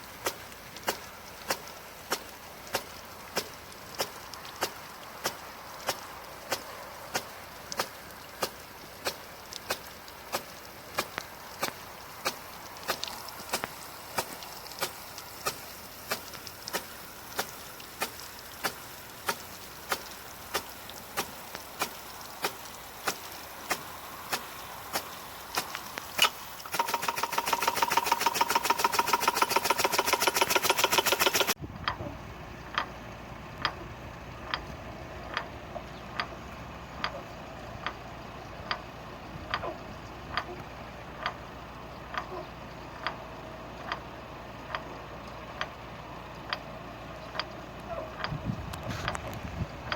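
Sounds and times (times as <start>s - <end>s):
irrigator ticking: 0.0s - 31.6s.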